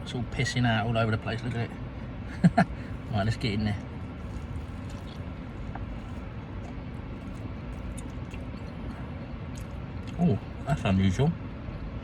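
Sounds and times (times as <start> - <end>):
low background hum: 0.0 - 12.0
person chewing crispy food: 3.8 - 10.6.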